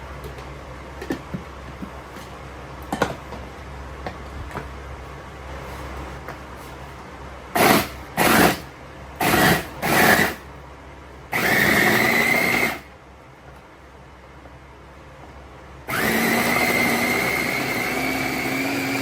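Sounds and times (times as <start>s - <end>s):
electric blender whining: 7.6s - 10.4s, 11.3s - 12.9s, 15.9s - 19.0s.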